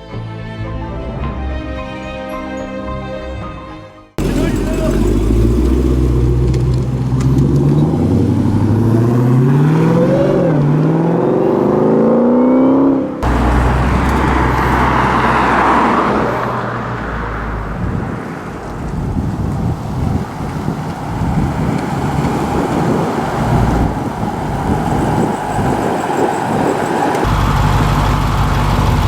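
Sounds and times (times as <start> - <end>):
tyre and wind noise: 4.2 - 12.3, 13.2 - 29.0
car engine accelerating: 4.2 - 29.0
engine drone: 4.2 - 29.0.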